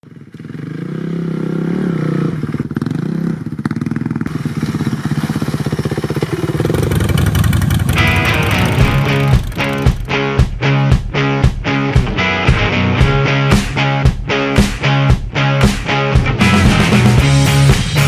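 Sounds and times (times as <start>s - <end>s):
motorcycle engine running: 0.0s - 10.5s
music: 7.9s - 18.0s.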